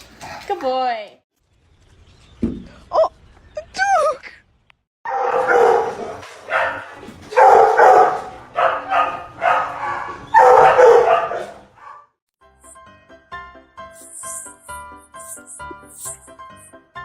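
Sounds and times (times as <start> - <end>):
dog barking loudly: 5.1 - 12.1.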